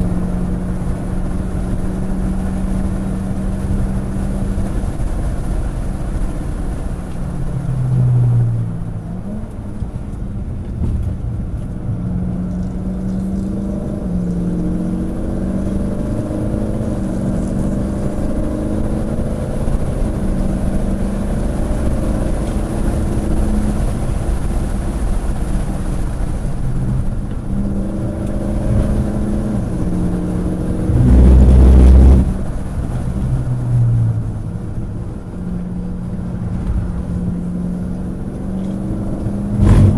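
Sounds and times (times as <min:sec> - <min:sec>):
car engine revving: 0:00.0 - 0:39.9
road and wind noise: 0:00.0 - 0:39.9
loud low rumble: 0:26.0 - 0:35.3.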